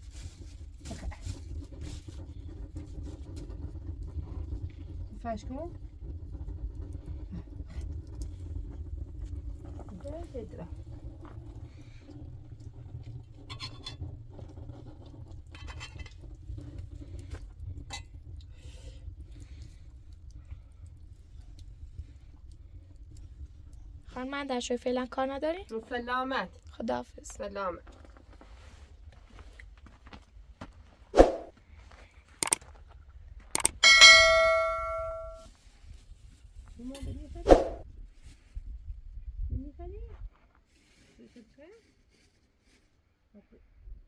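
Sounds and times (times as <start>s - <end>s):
sharp clicks: 33.6s - 33.8s
metal object ringing: 33.6s - 35.4s.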